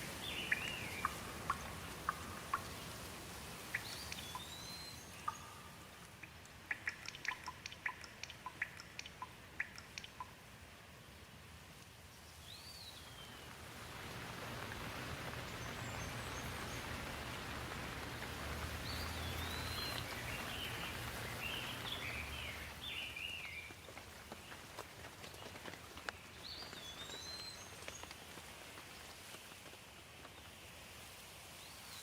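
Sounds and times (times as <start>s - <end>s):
bird chirping: 0.0s - 3.0s, 3.6s - 10.3s, 15.3s - 23.8s
raindrops ticking: 0.0s - 10.8s, 12.9s - 30.8s
steady rain hiss: 0.0s - 32.0s.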